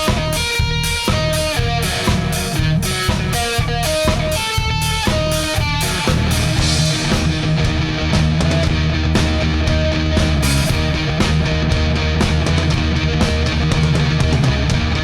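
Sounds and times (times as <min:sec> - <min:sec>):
bass: 0:00.0 - 0:15.0
drum beat: 0:00.0 - 0:15.0
guitar notes: 0:00.0 - 0:15.0
instrumental rock music: 0:00.0 - 0:15.0.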